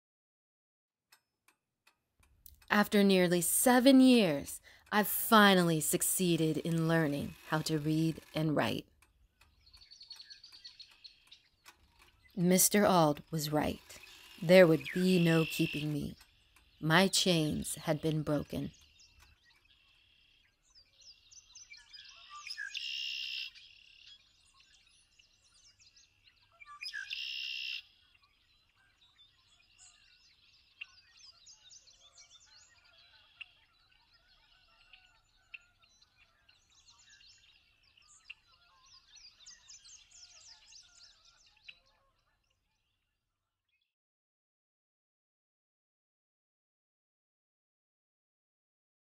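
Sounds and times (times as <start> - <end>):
birds chirping and singing: 5.0 - 43.0.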